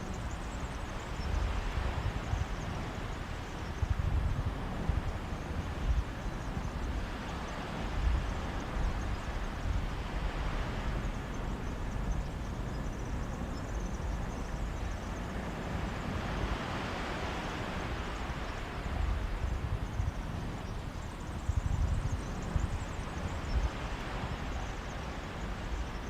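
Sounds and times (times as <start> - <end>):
wind on microphone: 0.0 - 26.0
sea waves washing onto beach: 13.7 - 26.0.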